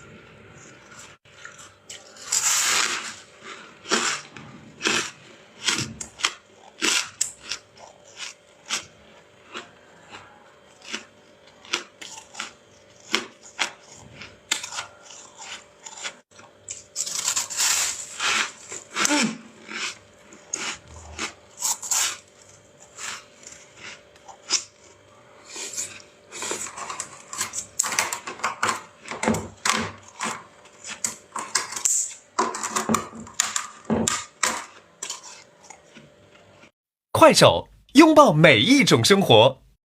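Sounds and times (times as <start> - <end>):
freezer frost being scraped: 1.9 - 4.4, 17.0 - 19.4, 35.0 - 35.7.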